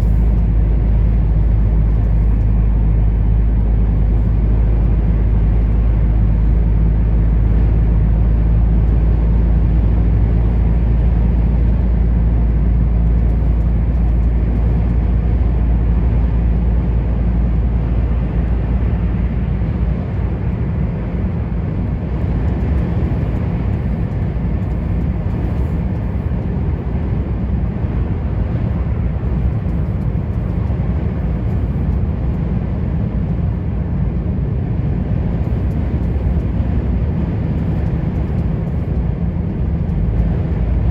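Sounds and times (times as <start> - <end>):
truck engine drone: 0.0 - 40.9
tyre and road noise: 0.0 - 40.9.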